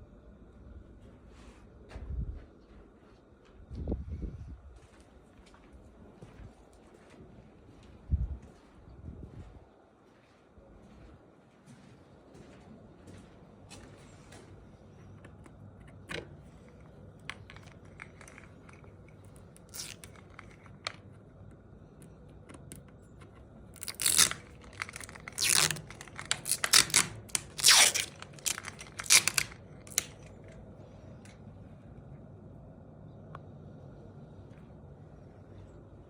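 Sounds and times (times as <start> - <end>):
rough ripping noises: 17.4 - 21.0, 23.7 - 30.6.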